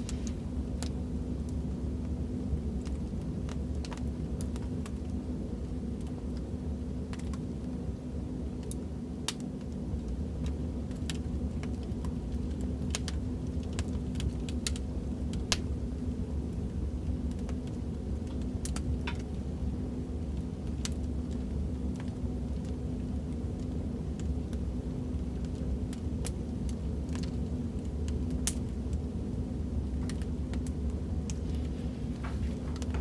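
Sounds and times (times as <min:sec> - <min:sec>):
wood fire crackling: 0:00.0 - 0:33.0
low rumble: 0:31.3 - 0:33.0.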